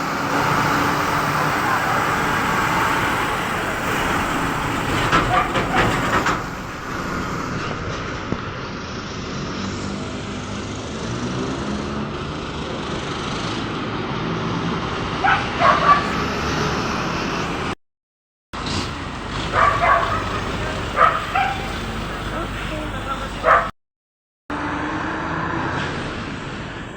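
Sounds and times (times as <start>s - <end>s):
heavy vehicle engine passing: 0.0s - 17.8s, 18.6s - 23.7s
road traffic: 0.0s - 17.8s, 18.6s - 23.8s, 24.5s - 26.9s
dog barking: 5.2s - 6.0s, 15.2s - 16.2s, 19.5s - 21.9s, 23.4s - 23.7s.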